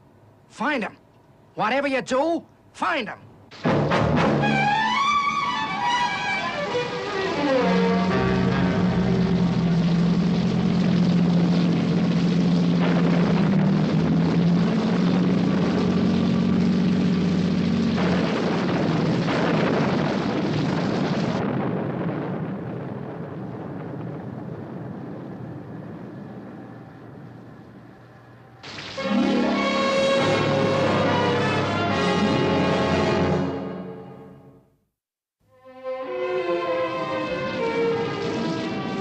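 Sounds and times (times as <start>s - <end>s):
engine drone: 3.5s - 22.2s, 24.3s - 33.7s, 35.9s - 39.0s.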